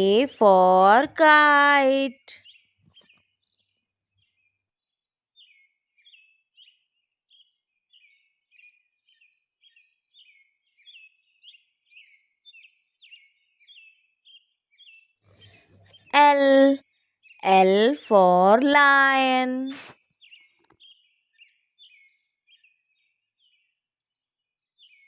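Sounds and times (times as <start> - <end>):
faint bird chirping: 0.0 - 25.0.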